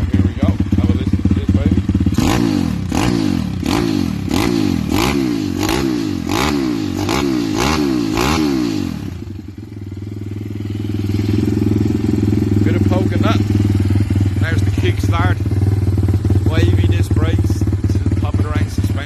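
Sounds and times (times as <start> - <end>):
motorbike engine revving: 0.0 - 19.0
exhaust cracks: 10.6 - 19.0.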